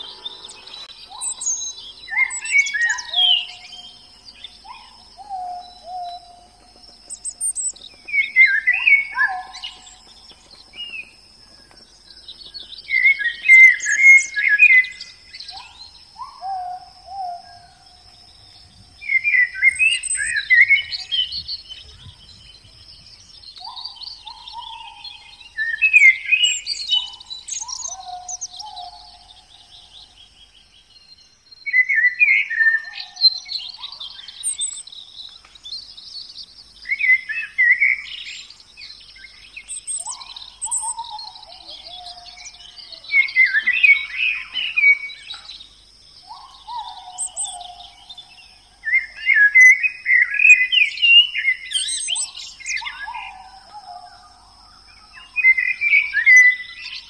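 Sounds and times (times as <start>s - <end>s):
faint steady high tone: 0.0s - 7.5s
birds singing and chirping: 0.0s - 57.0s.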